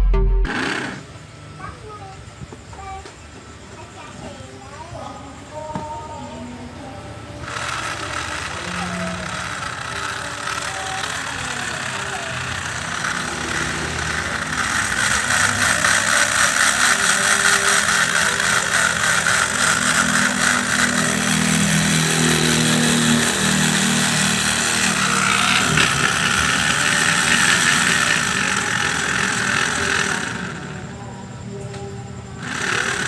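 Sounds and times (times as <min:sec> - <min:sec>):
model aircraft engine buzzing: 0:07.2 - 0:31.5, 0:32.2 - 0:33.0.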